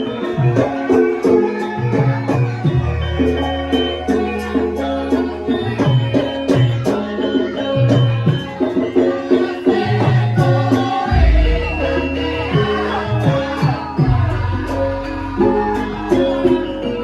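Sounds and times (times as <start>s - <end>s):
gamelan music: 0.0s - 17.0s
deep gong stroke: 11.1s - 12.2s.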